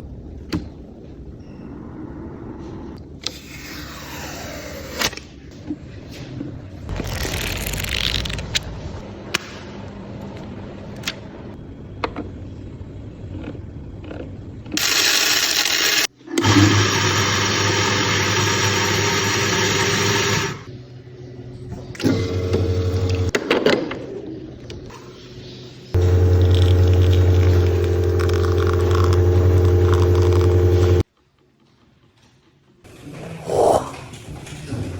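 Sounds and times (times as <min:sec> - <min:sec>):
coffee grinder whirring: 0:14.8 - 0:20.7, 0:22.1 - 0:23.3, 0:26.0 - 0:31.0.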